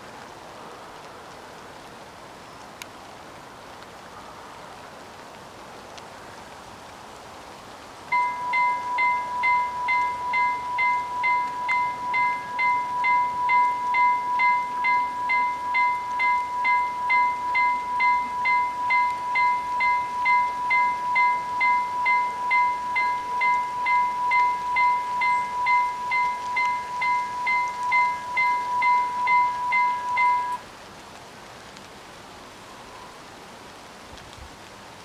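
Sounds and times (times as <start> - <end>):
level crossing warning bells ringing: 8.1 - 30.6.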